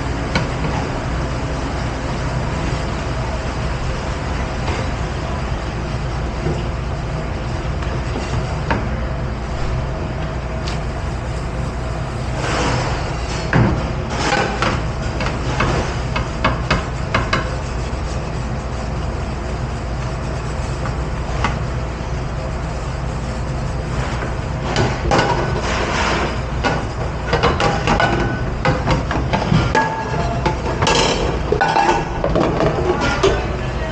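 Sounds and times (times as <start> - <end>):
steady low hum: 0.0 - 32.2
dishes and pans clattering: 27.3 - 33.5.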